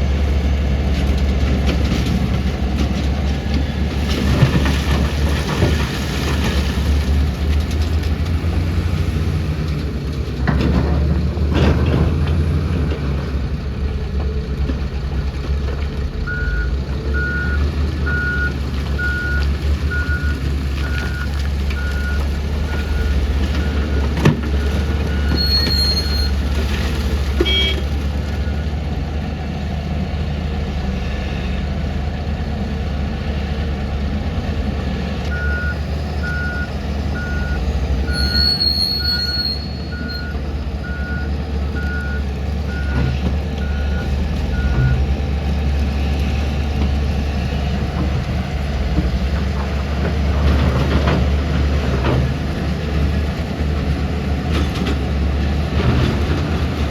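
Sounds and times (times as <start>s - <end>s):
diesel engine rumbling: 0.0s - 56.9s
backup alarm beeping: 27.4s - 27.8s.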